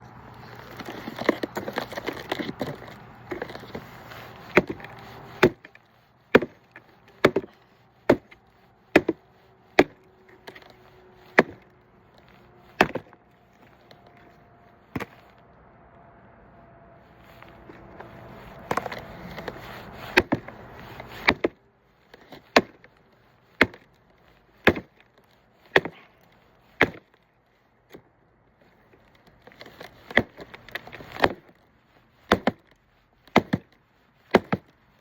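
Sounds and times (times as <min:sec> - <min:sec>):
wood cracking and splintering: 0:00.4 - 0:14.2, 0:17.4 - 0:27.2, 0:28.9 - 0:34.8
axe chopping wood: 0:04.4 - 0:10.7, 0:11.3 - 0:11.7, 0:12.7 - 0:13.2, 0:14.9 - 0:15.3, 0:18.6 - 0:22.9, 0:23.6 - 0:23.9, 0:24.6 - 0:25.0, 0:25.7 - 0:26.2, 0:26.8 - 0:27.2, 0:29.6 - 0:31.5, 0:32.3 - 0:32.6, 0:33.3 - 0:34.7.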